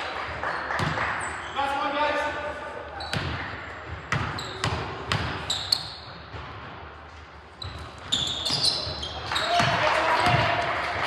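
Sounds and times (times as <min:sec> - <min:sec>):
basketball bouncing on gym floor: 0:00.8 - 0:01.0, 0:03.0 - 0:06.9, 0:07.6 - 0:10.5
sneaker squeaks: 0:00.8 - 0:01.8, 0:02.9 - 0:06.5, 0:07.4 - 0:09.7.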